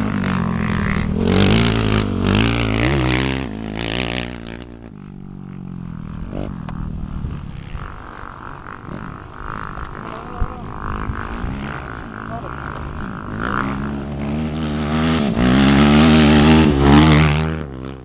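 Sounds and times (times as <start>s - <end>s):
racing engines revving past: 7.5s - 18.0s.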